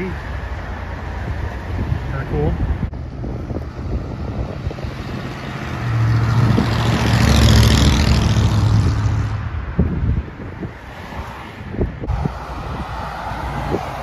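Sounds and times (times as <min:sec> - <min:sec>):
car driving past: 0:04.0 - 0:09.8.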